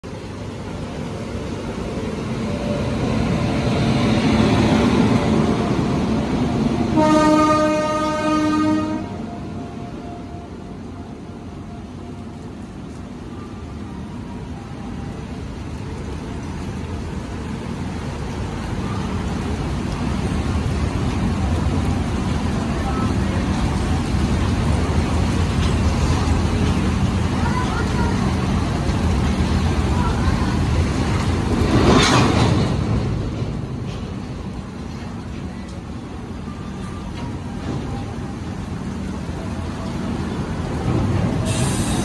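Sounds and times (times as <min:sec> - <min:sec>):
freight wagons rumbling past: 0:00.0 - 0:42.0
train horn: 0:06.9 - 0:10.4.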